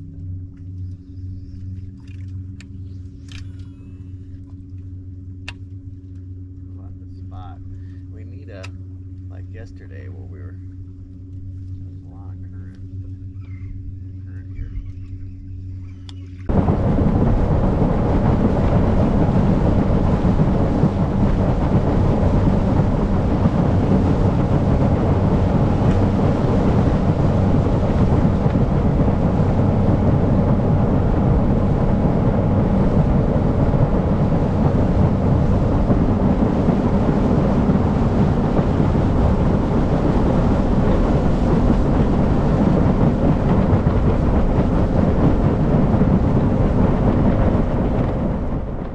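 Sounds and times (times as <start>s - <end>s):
faint engine hum: 0.0s - 48.9s
wind buffeting microphone: 12.5s - 48.9s.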